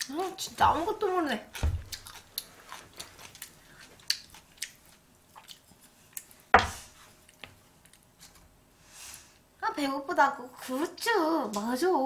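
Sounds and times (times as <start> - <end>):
person chewing: 1.4 - 6.5.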